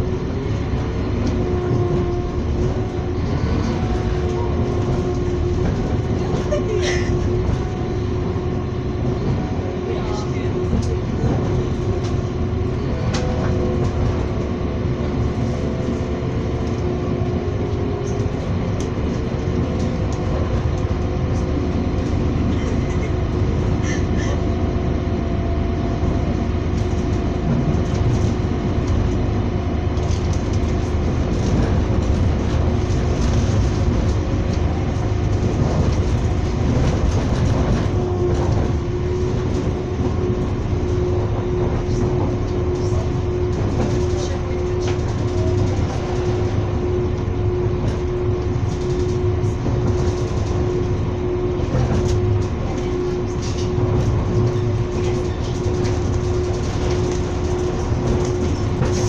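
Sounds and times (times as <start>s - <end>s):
train rumbling at speed: 0.0s - 59.0s.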